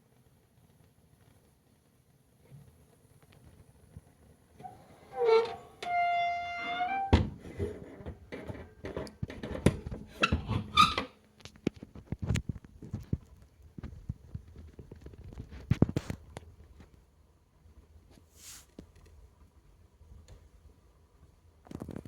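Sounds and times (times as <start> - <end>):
crackly rustling and clicks: 0.0 - 5.9, 11.2 - 20.6, 21.6 - 22.0
vinyl squeaking: 4.6 - 11.1.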